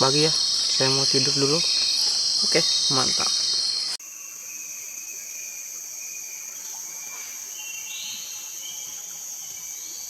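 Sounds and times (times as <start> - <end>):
bird calling: 0.0 - 4.0
high-pitched insect chorus: 0.0 - 10.0.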